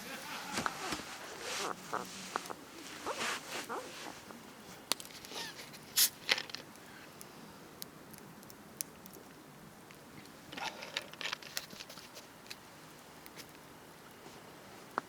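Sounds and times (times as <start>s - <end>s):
campfire crackling: 0.0s - 15.0s
brief rustling: 0.3s - 4.3s.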